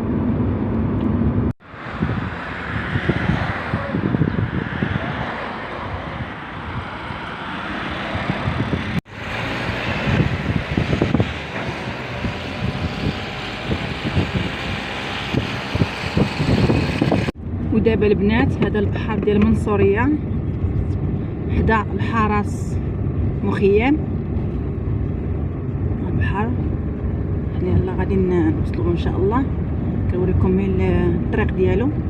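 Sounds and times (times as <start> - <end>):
car road and wind noise: 0.0 - 32.0
low bumps: 0.0 - 32.0.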